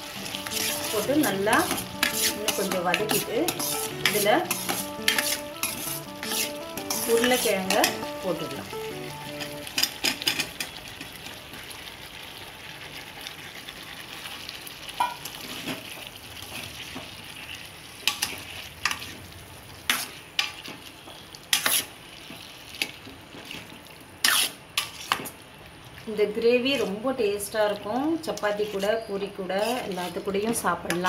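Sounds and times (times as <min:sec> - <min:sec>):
gravy sizzling in a pan: 0:00.0 - 0:30.6
metal spatula scraping a pan: 0:00.4 - 0:08.0, 0:24.2 - 0:25.2, 0:28.6 - 0:30.3.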